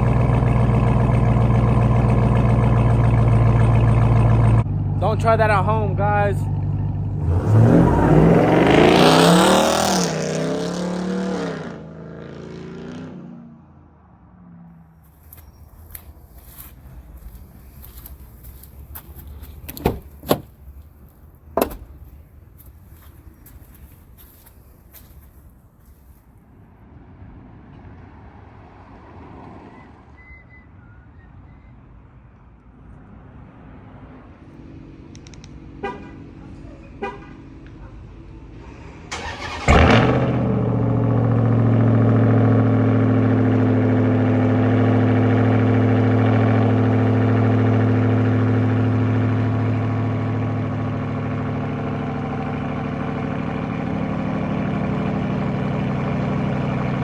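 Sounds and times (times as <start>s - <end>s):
vehicle engine rumbling: 0.0s - 9.9s, 14.3s - 27.5s, 30.5s - 57.0s
engine revving hard: 7.2s - 13.1s, 39.1s - 48.4s.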